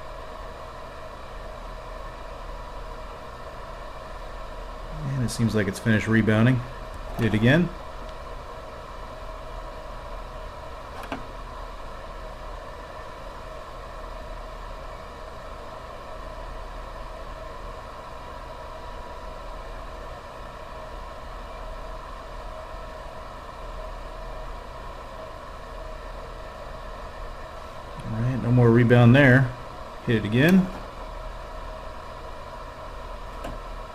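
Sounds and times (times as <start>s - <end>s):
steady background hum: 0.0s - 33.9s.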